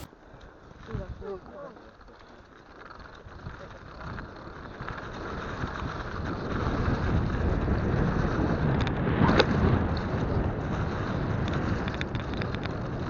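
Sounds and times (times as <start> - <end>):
bike rolling over snow: 0.0 - 13.0
wind buffeting microphone: 3.2 - 13.0.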